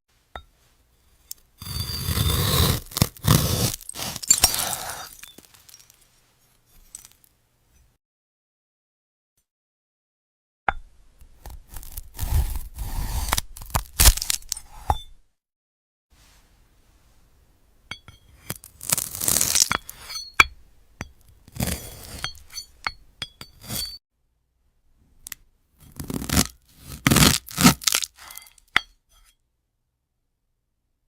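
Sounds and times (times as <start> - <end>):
knife slicing brittle fruit: 1.6 - 5.2, 11.2 - 14.9, 18.5 - 20.1, 21.4 - 22.8, 23.5 - 24.0, 25.8 - 28.6.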